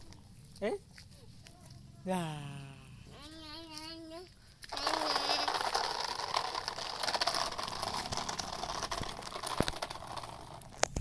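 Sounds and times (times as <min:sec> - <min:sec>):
toy truck wheels rattling: 0:04.6 - 0:11.0.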